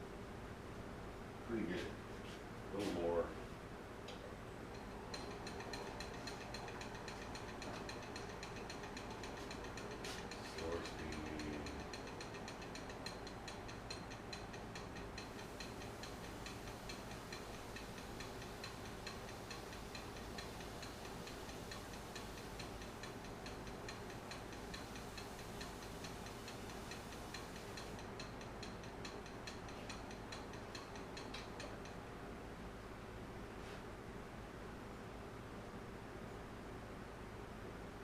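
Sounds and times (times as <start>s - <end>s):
lathe ticking: 4.7s - 32.0s
lathe motor hum: 4.8s - 28.6s.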